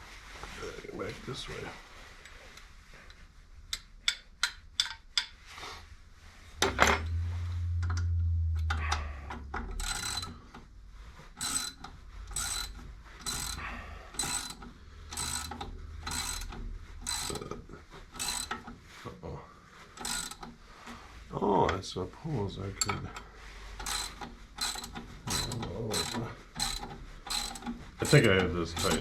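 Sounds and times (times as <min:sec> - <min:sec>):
low hum: 0:06.5 - 0:11.4
loud metal clank: 0:06.6 - 0:10.3
ratchet wrench clicking: 0:08.6 - 0:10.7, 0:11.4 - 0:17.4, 0:18.2 - 0:18.6, 0:20.0 - 0:20.5, 0:23.8 - 0:29.0.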